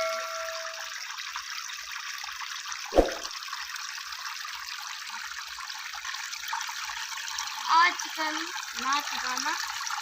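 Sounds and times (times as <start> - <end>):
water trickling in tabletop fountain: 0.0 - 10.0
short thump: 2.9 - 3.3.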